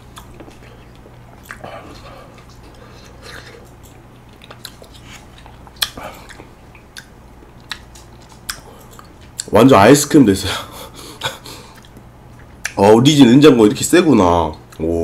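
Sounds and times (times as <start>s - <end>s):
wet chewing sounds: 0.0s - 9.6s, 11.2s - 14.9s
sharp clicks while chewing: 0.1s - 1.7s, 2.4s - 9.5s, 11.7s - 12.8s.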